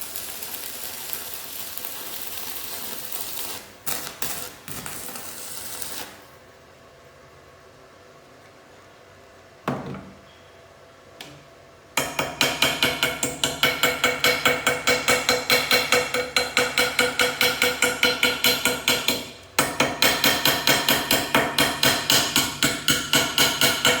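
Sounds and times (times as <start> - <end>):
hammer striking metal: 12.0 - 24.0.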